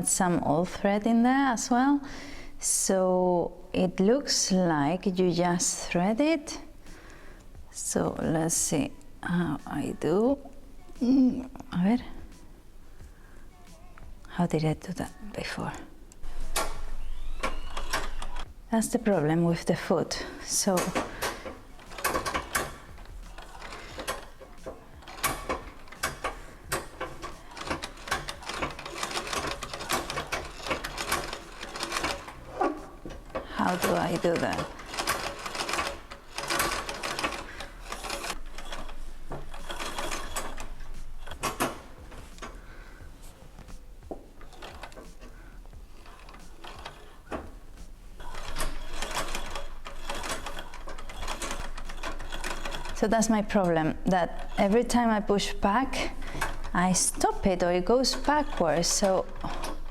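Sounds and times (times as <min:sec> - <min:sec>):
treadle sewing machine clicking: 0:16.4 - 0:18.5, 0:20.6 - 0:42.6, 0:44.4 - 0:45.3, 0:45.9 - 0:47.6, 0:48.2 - 0:59.9.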